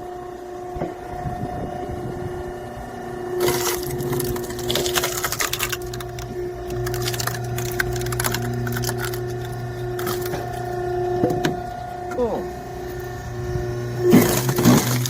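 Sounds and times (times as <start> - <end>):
electric motor and pump humming: 0.0 - 15.0
log cracking and splintering: 3.4 - 10.8, 14.1 - 15.0.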